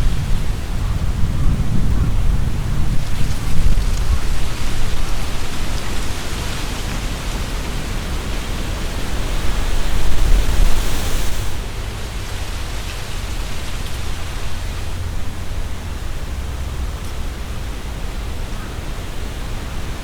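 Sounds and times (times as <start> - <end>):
leaves rustling: 0.0 - 1.3, 2.6 - 16.4
wind rumble on microphones: 0.0 - 20.0
wind through trees: 0.0 - 20.0.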